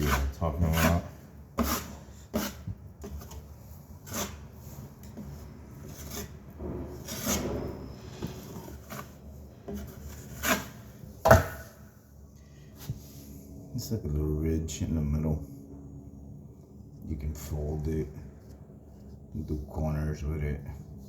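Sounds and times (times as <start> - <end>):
putty knife scraping drywall: 0.0 - 11.5.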